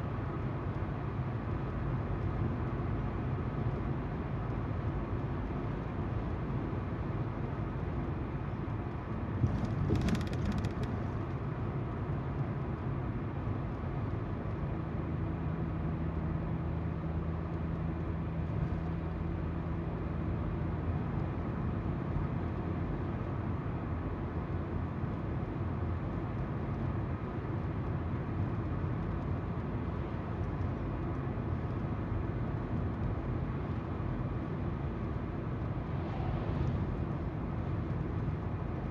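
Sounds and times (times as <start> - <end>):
tyre noise on road: 9.2 - 11.4.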